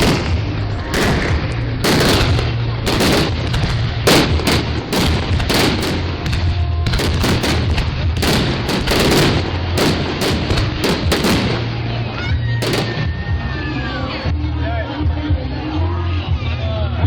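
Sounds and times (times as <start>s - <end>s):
fireworks sharp bangs: 0.0s - 13.4s
rumble of explosions: 0.0s - 14.2s.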